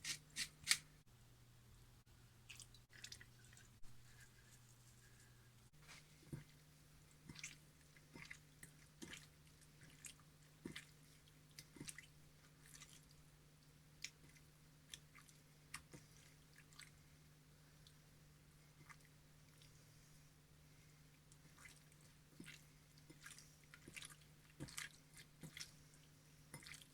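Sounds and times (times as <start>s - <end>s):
soft wet squishing taps: 5.8s - 17.0s, 17.8s - 19.8s, 21.1s - 26.9s.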